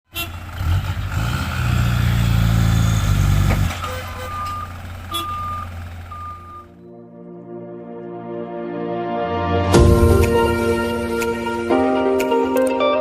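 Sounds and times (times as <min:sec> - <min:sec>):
truck engine running: 0:00.1 - 0:06.8
reversing alarm beeping: 0:03.7 - 0:07.0.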